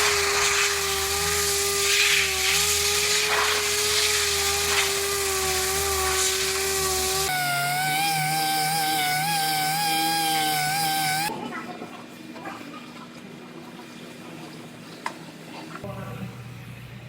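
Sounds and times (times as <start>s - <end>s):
power tool grinding metal: 0.0s - 11.3s.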